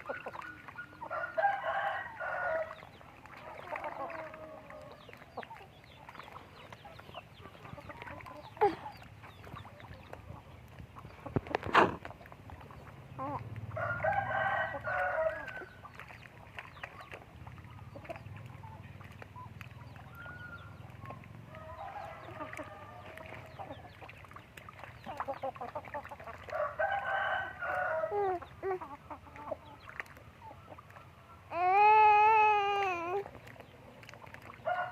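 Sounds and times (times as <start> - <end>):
rooster crowing: 1.1 - 2.7, 13.8 - 15.6, 21.6 - 23.2, 26.5 - 28.2, 34.6 - 34.9.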